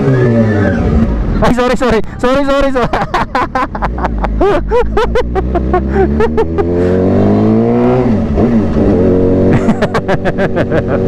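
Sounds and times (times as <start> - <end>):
motorcycle engine accelerating: 2.9 - 11.0.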